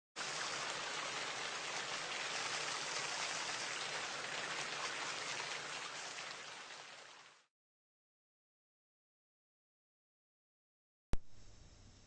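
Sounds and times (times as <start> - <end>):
steady rain: 0.2 - 7.5.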